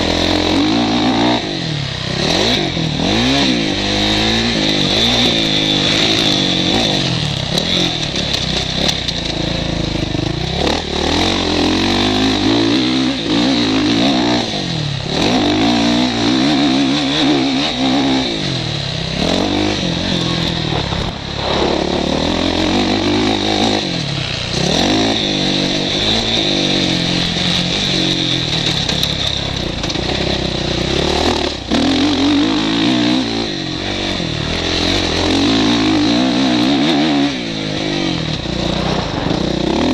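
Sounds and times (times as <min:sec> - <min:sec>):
motocross bike engine revving: 0:00.0 - 0:39.9
wind rush on microphone: 0:38.6 - 0:39.7.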